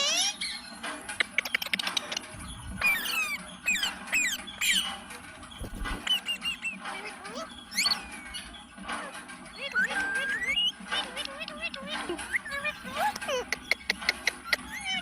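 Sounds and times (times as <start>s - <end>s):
parrot chirping: 0.0s - 15.0s
rapid clicks: 0.8s - 2.4s.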